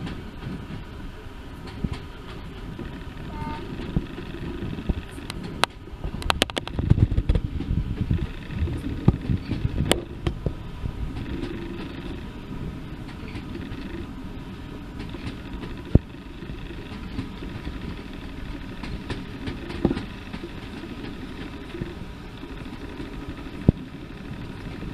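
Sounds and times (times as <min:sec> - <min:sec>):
train rumbling: 0:00.0 - 0:24.9
train wheels knocking and clattering: 0:00.0 - 0:24.9.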